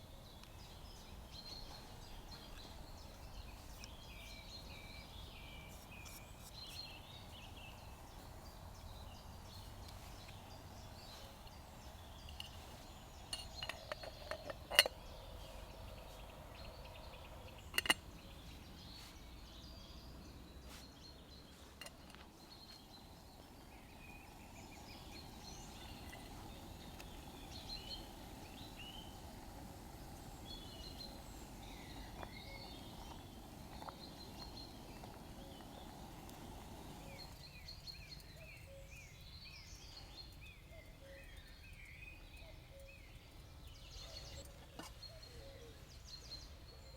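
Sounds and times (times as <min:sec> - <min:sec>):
background hush: 0:20.6 - 0:39.0.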